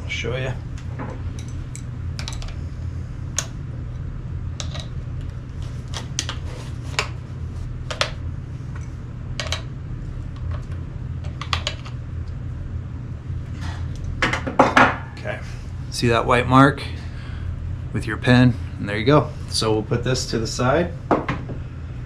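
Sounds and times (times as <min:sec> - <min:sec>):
steady low hum: 0:00.0 - 0:22.0
metal parts clicking and tapping: 0:01.4 - 0:02.6, 0:09.4 - 0:09.7.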